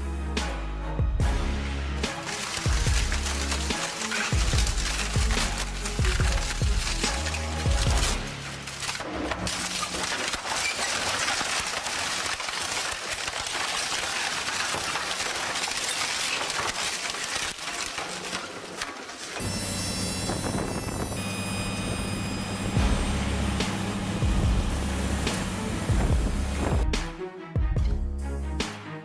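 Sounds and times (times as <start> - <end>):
wood crackling and splintering: 1.2 - 27.1
machine engine hum with whine: 19.4 - 27.0.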